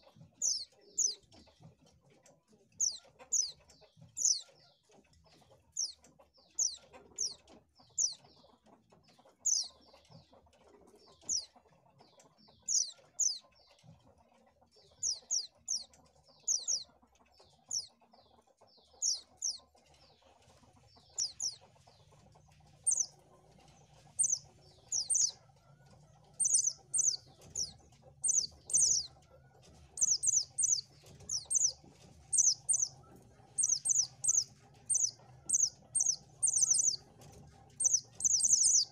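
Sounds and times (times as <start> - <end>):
bird chirping high sweeping calls: 22.9 - 23.1, 24.2 - 25.3, 26.4 - 29.1, 30.0 - 32.9, 33.6 - 37.0, 37.8 - 38.9.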